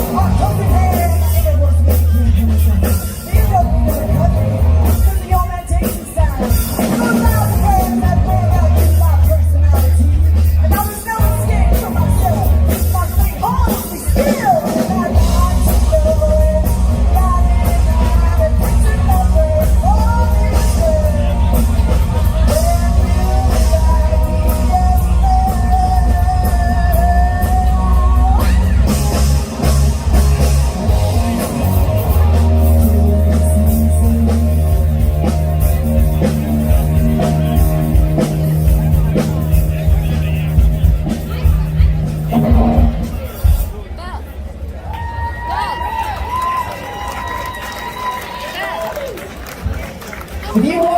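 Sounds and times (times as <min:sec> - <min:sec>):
melodic lead guitar line: 0:00.0 - 0:43.9
live rock band playing: 0:00.0 - 0:44.5.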